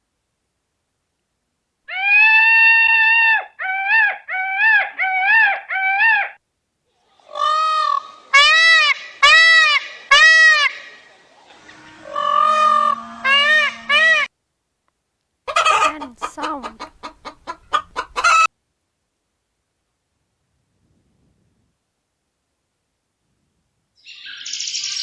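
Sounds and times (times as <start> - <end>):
peacock calling: 7.0 - 14.3, 15.5 - 18.5.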